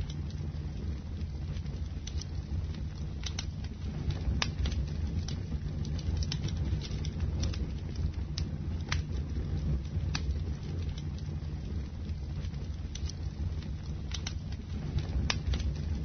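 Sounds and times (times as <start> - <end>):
fire crackling and popping: 0.0 - 16.0
flames rumbling: 0.0 - 16.0.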